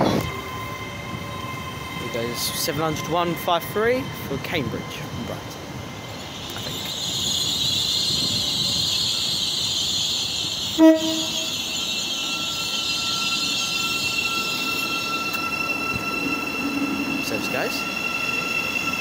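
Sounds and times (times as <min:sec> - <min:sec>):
train wheel and running noise: 0:00.0 - 0:19.0
thin high whine: 0:06.2 - 0:19.0
train horn toot: 0:10.7 - 0:12.0.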